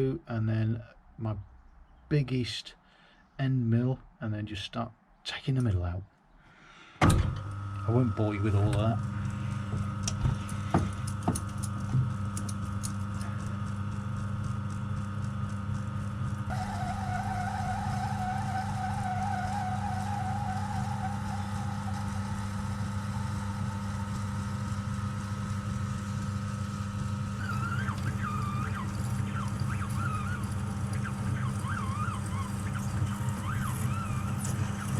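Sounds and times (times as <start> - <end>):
lathe running: 7.4 - 34.9
high wavering squeal of cutter: 16.5 - 25.2, 27.3 - 34.9.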